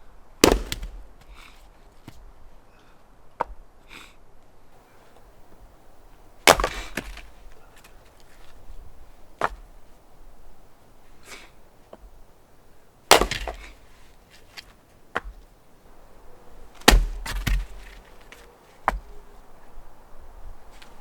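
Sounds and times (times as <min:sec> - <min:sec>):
sharp wooden strikes: 0:00.4 - 0:01.4, 0:06.5 - 0:07.3, 0:13.1 - 0:13.8, 0:16.8 - 0:18.0
wood splintering crackle: 0:00.4 - 0:01.4, 0:13.1 - 0:13.8, 0:16.8 - 0:18.4.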